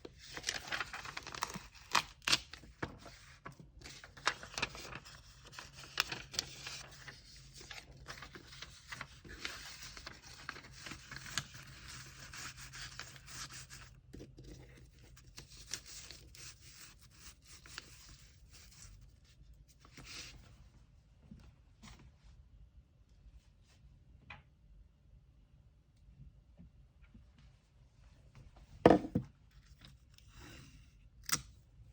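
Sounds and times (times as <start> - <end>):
packaging paper rustling and tearing: 0.2 - 13.9.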